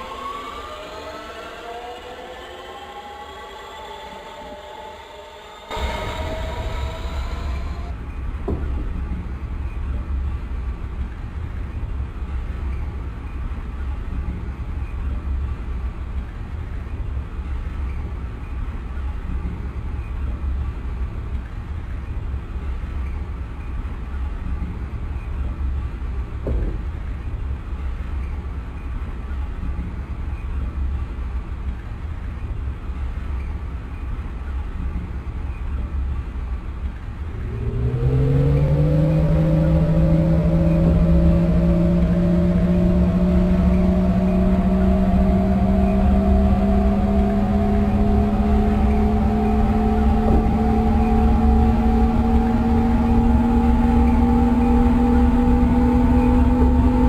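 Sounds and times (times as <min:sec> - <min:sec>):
electric motor whine: 0:00.0 - 0:08.0, 0:37.4 - 0:57.0
train interior rumble: 0:00.0 - 0:57.0
knock: 0:08.4 - 0:09.0, 0:26.4 - 0:26.9.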